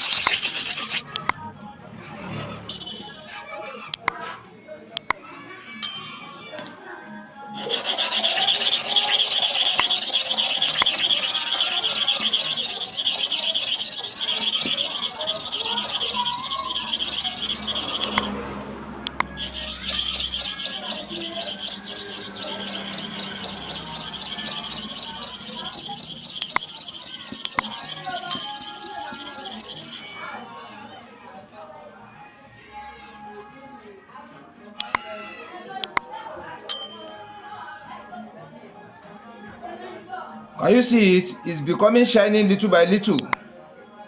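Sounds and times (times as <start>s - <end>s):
clipper blade scraping abrasive: 0.0s - 1.4s, 7.6s - 18.4s, 19.0s - 30.4s.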